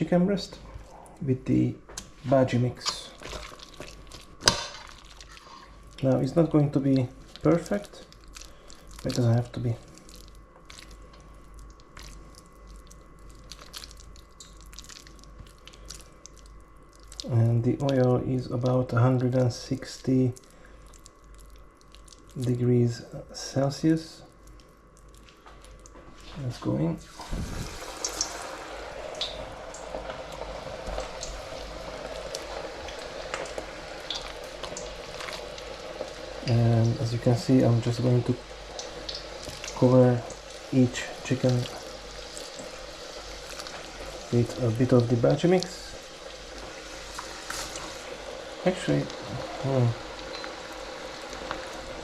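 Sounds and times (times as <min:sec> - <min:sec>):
hot oil bubbling and crackling: 0:00.0 - 0:52.0
hands squelching sticky batter: 0:02.0 - 0:19.5, 0:33.4 - 0:35.4, 0:38.8 - 0:45.8.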